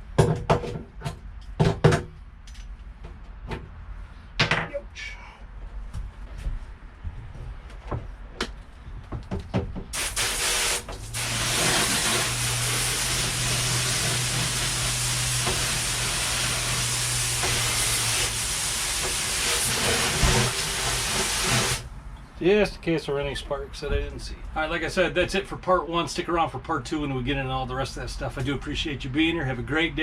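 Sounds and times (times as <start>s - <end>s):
spraying hiss: 10.0s - 21.8s.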